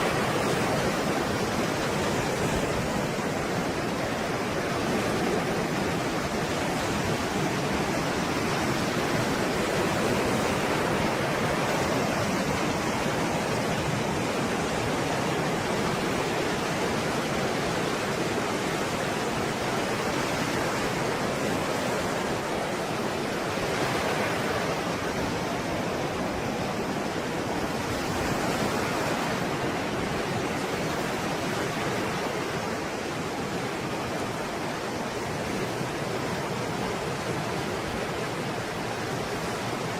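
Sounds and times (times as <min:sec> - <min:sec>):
stormy sea waves: 0:00.0 - 0:39.9.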